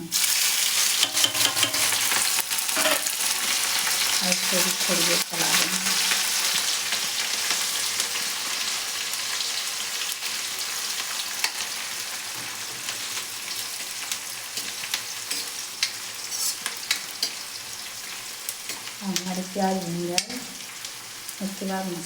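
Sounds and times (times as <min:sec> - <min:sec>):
onions sizzling in hot oil: 0:00.0 - 0:22.0
utensil clicking against pan: 0:00.9 - 0:03.1.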